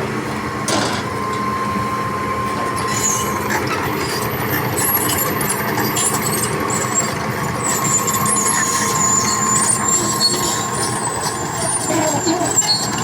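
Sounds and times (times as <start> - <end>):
diesel machinery running: 0.0 - 13.0
high-pitched squeals: 2.8 - 13.0.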